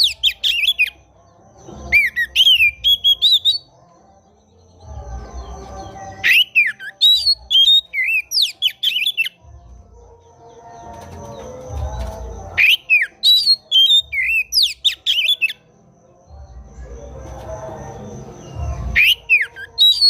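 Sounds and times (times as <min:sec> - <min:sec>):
songbird singing whistled phrases: 0:00.0 - 0:01.0, 0:01.8 - 0:03.7, 0:05.6 - 0:09.4, 0:12.0 - 0:15.6, 0:18.4 - 0:20.0.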